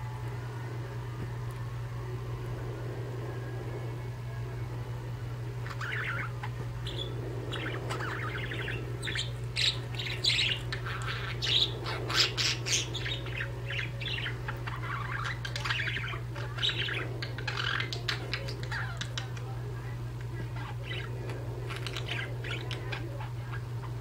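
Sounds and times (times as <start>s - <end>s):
steady low hum: 0.0s - 24.0s
budgerigars chirping: 5.6s - 19.6s, 20.4s - 24.0s.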